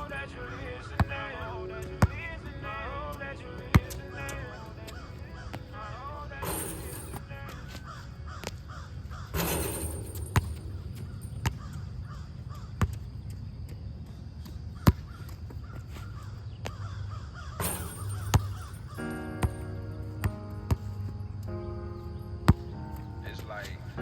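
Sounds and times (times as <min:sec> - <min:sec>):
crows cawing: 0:07.5 - 0:10.2, 0:11.0 - 0:12.9, 0:14.8 - 0:19.1.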